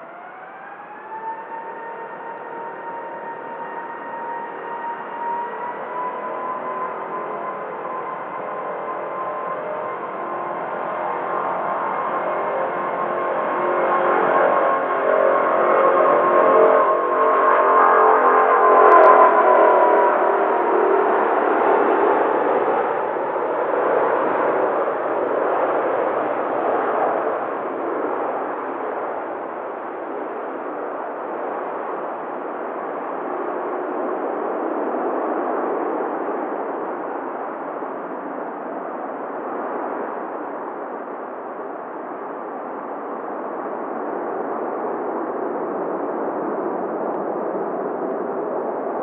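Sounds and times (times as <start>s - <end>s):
jet engines roaring: 0.0s - 49.0s.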